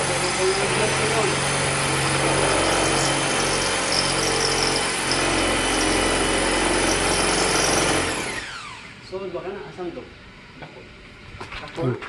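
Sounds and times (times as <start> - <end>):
electric drill motor whine: 0.0 - 9.0.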